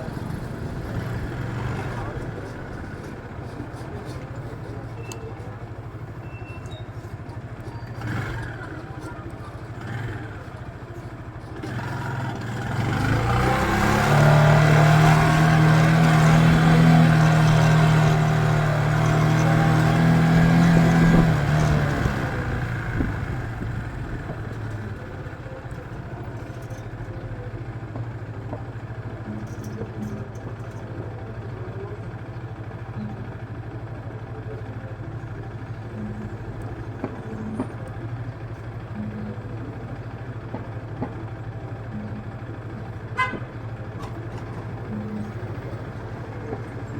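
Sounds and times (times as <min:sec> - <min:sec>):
passing vehicle engine: 0:00.0 - 0:04.8, 0:07.9 - 0:10.8, 0:11.5 - 0:26.2
traffic engine hum: 0:00.0 - 0:46.9.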